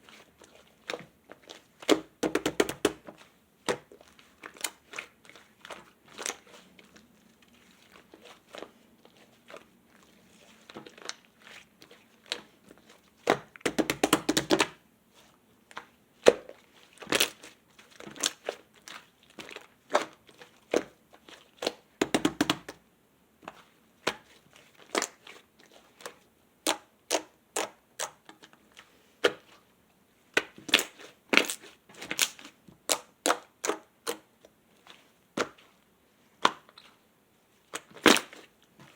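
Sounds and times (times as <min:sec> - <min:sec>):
slime crackling: 0:00.0 - 0:22.8.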